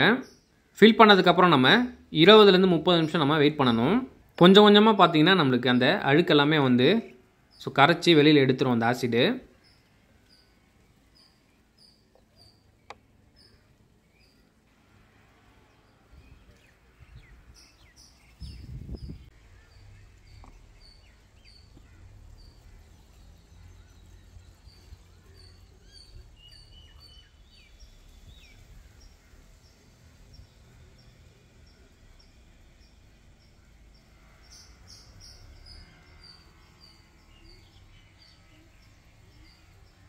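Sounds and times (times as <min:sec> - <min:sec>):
small bird chirping: 0:09.4 - 0:14.7, 0:15.7 - 0:40.0
other birds calling: 0:09.4 - 0:40.0.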